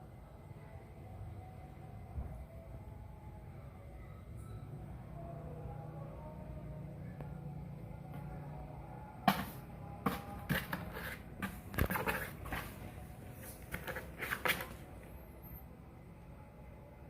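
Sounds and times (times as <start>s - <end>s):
kittens scuffling and scratching: 9.3s - 15.1s.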